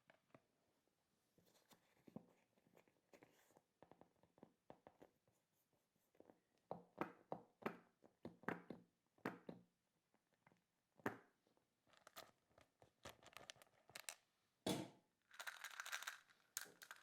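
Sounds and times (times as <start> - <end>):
squeeze toys tapping and clicking: 15.3 - 17.0.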